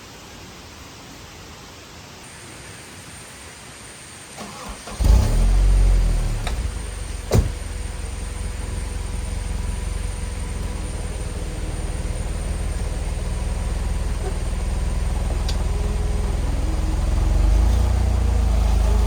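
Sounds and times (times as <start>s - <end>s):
car engine starting and idling: 4.4s - 19.0s.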